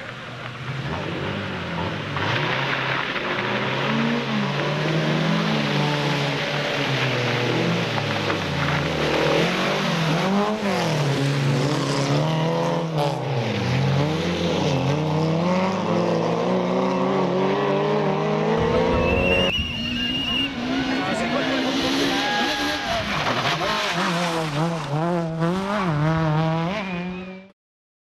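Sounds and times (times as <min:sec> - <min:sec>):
racing car engines revving: 0:00.0 - 0:27.5.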